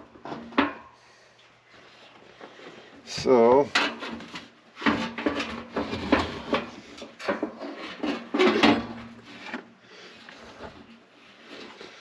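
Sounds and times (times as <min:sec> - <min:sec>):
metal parts clattering and scraping: 0:03.7 - 0:09.6.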